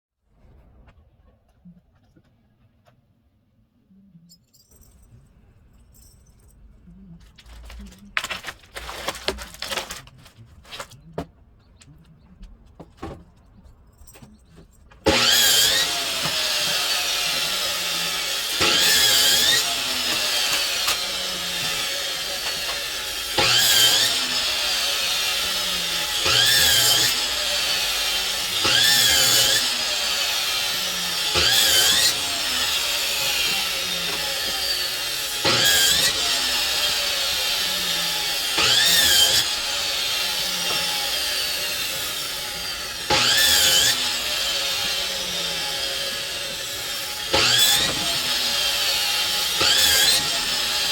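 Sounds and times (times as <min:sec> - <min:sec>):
power saw cutting wood: 0:15.0 - 0:50.9.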